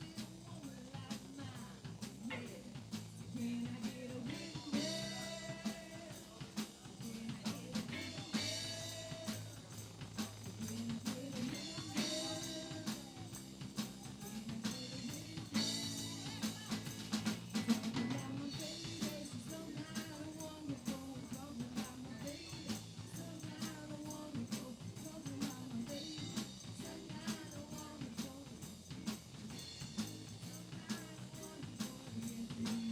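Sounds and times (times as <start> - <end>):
drum kit steady beat: 0.0 - 32.9
live band playing: 4.4 - 19.7.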